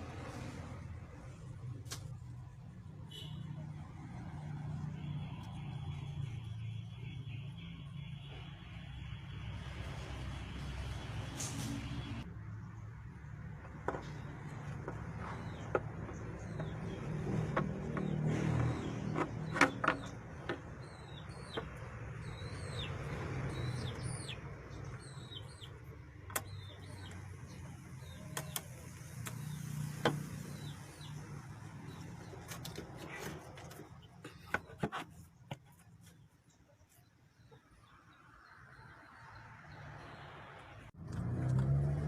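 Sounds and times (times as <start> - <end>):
small birds chirping: 11.8 - 41.0.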